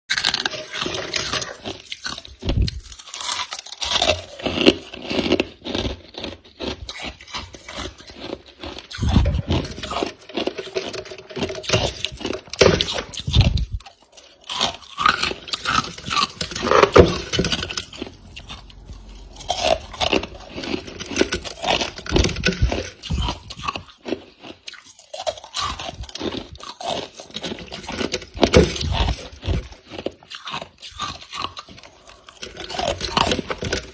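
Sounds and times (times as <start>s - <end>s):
chewing crunchy ice: 0.1s - 33.9s.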